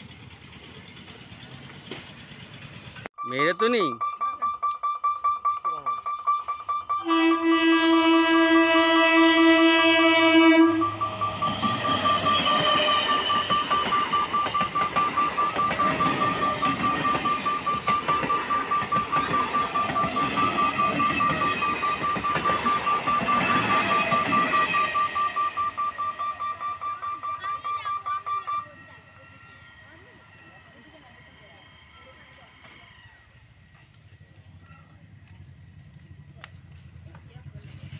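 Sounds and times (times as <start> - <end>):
train wheels clattering over rail joints: 0.0 - 3.1
pulsing electronic warning beep: 3.2 - 7.5, 10.0 - 30.8
train horn: 7.0 - 13.9.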